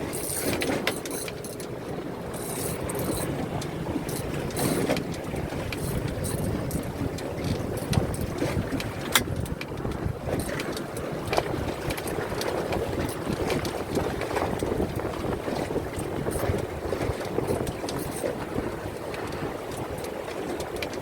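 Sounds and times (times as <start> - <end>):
water slapping at hull: 0.0 - 21.0
wind rumbling on microphone: 0.0 - 21.0.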